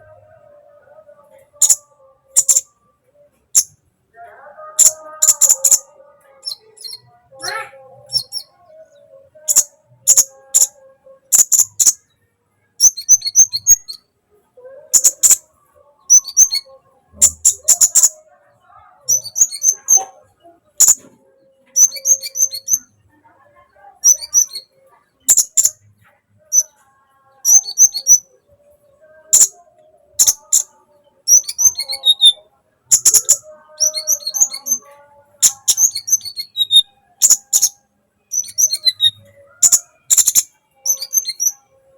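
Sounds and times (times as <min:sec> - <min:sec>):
bird chirping and trilling: 0:01.5 - 0:02.7, 0:03.5 - 0:03.8, 0:04.7 - 0:12.0, 0:12.8 - 0:14.0, 0:14.8 - 0:15.4, 0:16.0 - 0:18.2, 0:19.0 - 0:23.0, 0:24.0 - 0:25.9, 0:26.5 - 0:26.8, 0:27.4 - 0:28.3, 0:29.2 - 0:29.6, 0:30.2 - 0:41.7.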